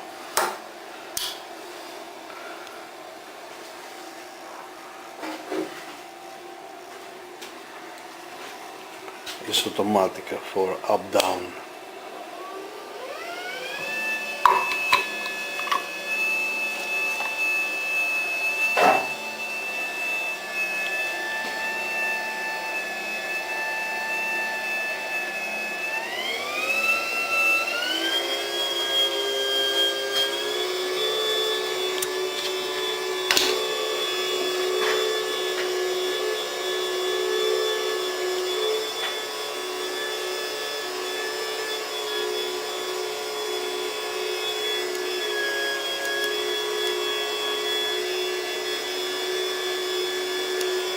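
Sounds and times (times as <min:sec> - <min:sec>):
electric motor whining: 0:12.4 - 0:50.9.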